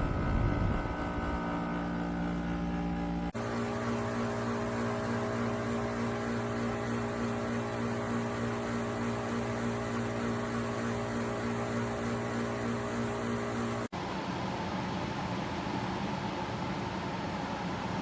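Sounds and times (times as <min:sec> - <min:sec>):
dehumidifier humming: 0:00.0 - 0:14.0.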